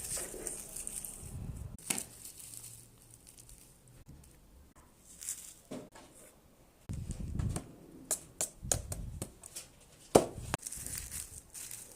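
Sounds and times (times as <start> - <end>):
soft rustling: 9.7 - 11.9.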